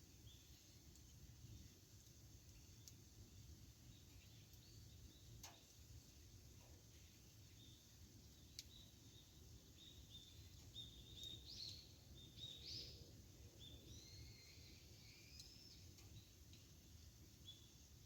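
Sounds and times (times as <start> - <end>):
campfire snapping: 2.8 - 3.0, 8.4 - 8.8
faint bird chirps: 8.4 - 16.4.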